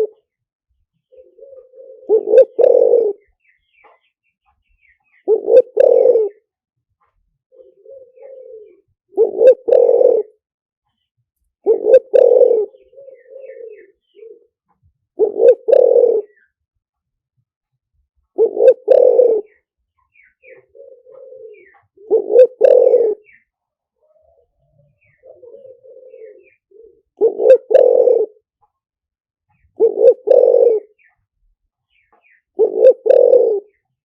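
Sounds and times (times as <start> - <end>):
dove cooing: 0.0 - 0.3, 1.0 - 4.0, 5.0 - 6.5, 7.5 - 10.4, 11.6 - 16.6, 18.3 - 28.5, 29.5 - 31.2, 32.2 - 34.0.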